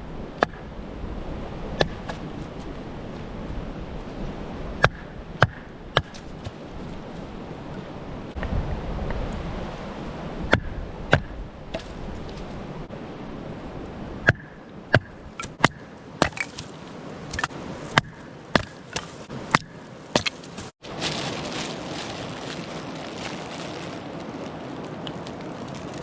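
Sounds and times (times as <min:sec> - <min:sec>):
blade chopping on wood: 0:00.4 - 0:00.7, 0:01.8 - 0:02.4, 0:04.8 - 0:06.6, 0:10.5 - 0:12.0, 0:14.2 - 0:16.7, 0:17.3 - 0:20.7.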